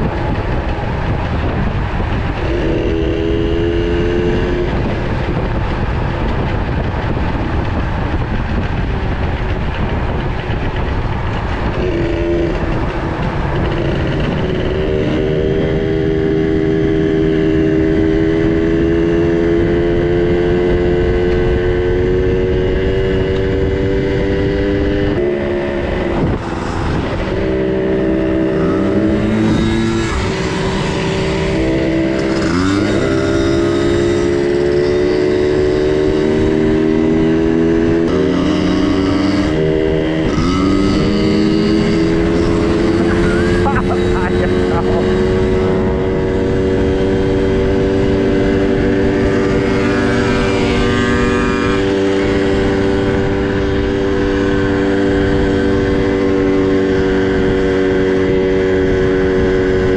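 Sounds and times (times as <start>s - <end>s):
two-stroke minibike engine: 28.0s - 36.6s, 38.0s - 59.9s.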